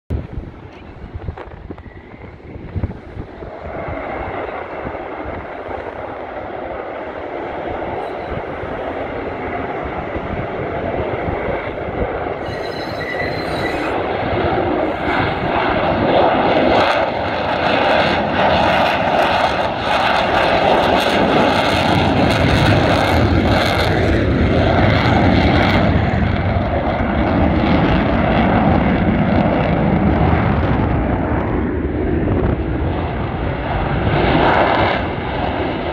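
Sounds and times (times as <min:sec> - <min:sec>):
jet engine roar with whine: 0:00.1 - 0:35.9
jet crackling: 0:00.7 - 0:27.4.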